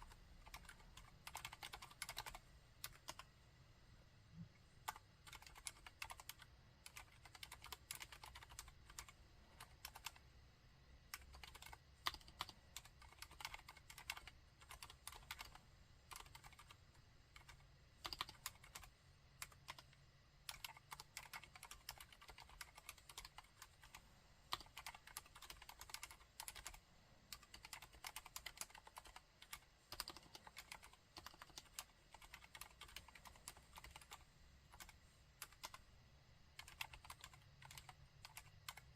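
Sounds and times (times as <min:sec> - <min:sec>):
quiet keyboard typing: 0:00.0 - 0:03.4, 0:04.4 - 0:38.9.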